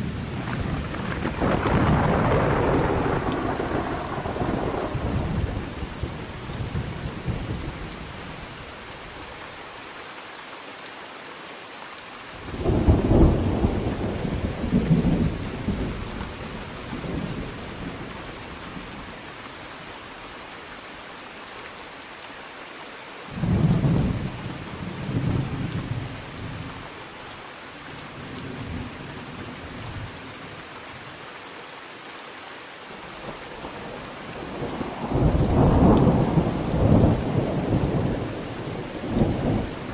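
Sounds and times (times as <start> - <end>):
rolling thunder: 0.0 - 7.7, 12.5 - 18.0, 34.3 - 39.9
steady rain hissing: 0.0 - 39.9.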